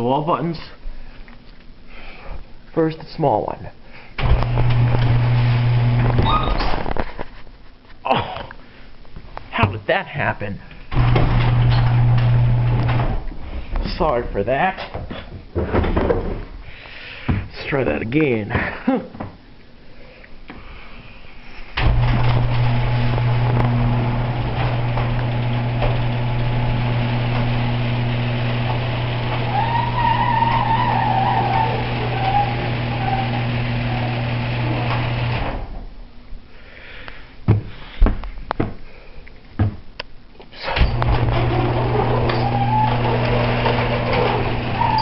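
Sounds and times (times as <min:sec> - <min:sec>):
garage door opener humming: 0:04.2 - 0:06.7, 0:10.9 - 0:13.3, 0:21.8 - 0:35.8, 0:40.6 - 0:45.0
garage door squeaking and rattling: 0:04.2 - 0:06.9, 0:10.9 - 0:13.3, 0:21.8 - 0:35.9, 0:40.6 - 0:45.0.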